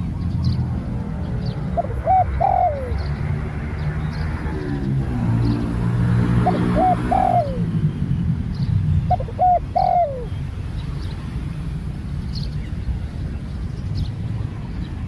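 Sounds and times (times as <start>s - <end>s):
dove cooing: 1.5s - 3.1s, 6.2s - 7.8s, 9.1s - 10.3s.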